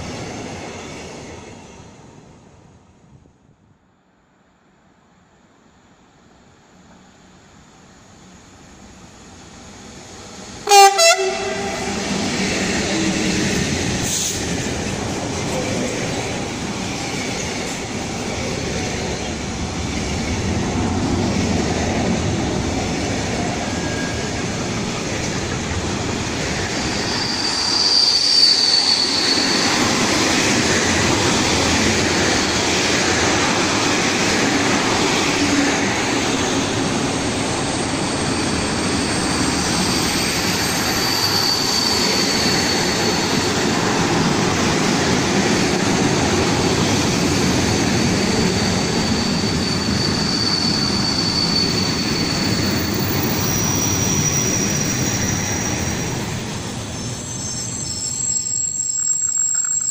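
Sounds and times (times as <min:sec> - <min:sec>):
train wheels rolling on rails: 0:06.4 - 0:59.9
high wheel squeal: 0:26.1 - 0:32.8, 0:37.3 - 0:59.9.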